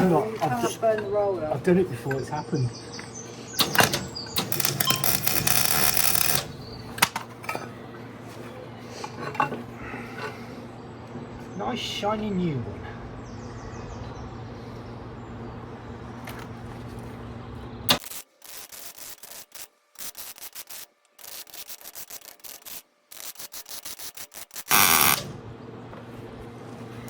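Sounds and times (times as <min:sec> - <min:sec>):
steady electric hum: 0:00.0 - 0:27.0
arc welding buzzing and crackling: 0:03.6 - 0:07.2, 0:17.9 - 0:25.6.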